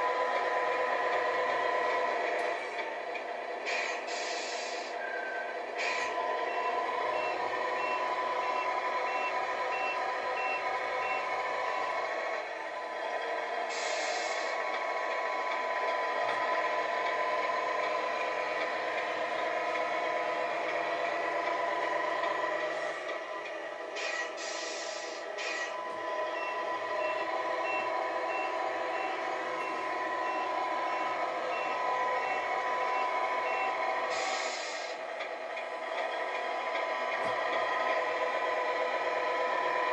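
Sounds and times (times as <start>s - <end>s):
simulated truck engine: 0.0s - 39.9s
reversing alarm beeps: 5.0s - 12.0s, 24.1s - 34.9s.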